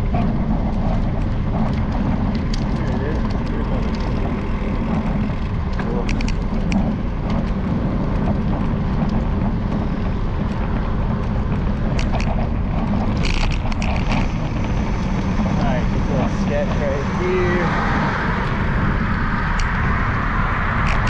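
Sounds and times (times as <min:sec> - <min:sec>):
wind rumble on microphone: 0:00.0 - 0:21.0
camera mount rattling clicks: 0:13.1 - 0:14.2.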